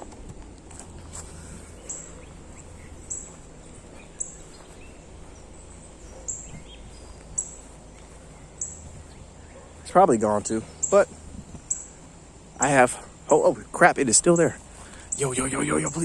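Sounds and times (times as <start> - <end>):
steady background hush: 0.0 - 16.0
faint bird chirps: 1.1 - 13.6, 14.3 - 16.0
bird high sharp call: 1.3 - 9.9, 10.6 - 12.7.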